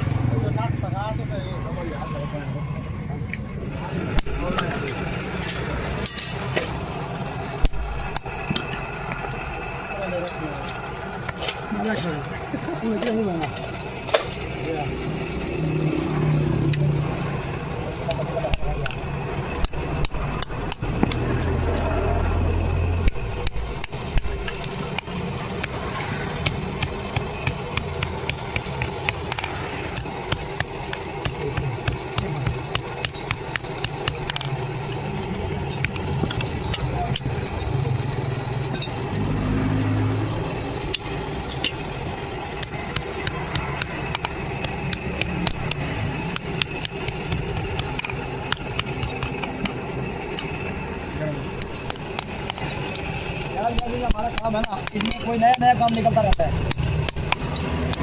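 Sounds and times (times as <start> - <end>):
low engine rumble: 0.0 - 58.0
hammer striking iron on anvil: 4.1 - 6.8, 7.6 - 8.8, 26.4 - 34.5, 42.6 - 49.8.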